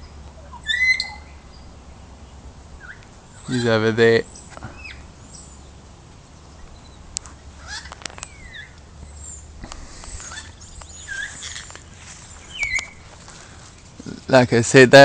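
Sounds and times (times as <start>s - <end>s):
parrots whistling and squawking: 0.4s - 1.4s, 7.6s - 11.7s, 12.4s - 13.0s.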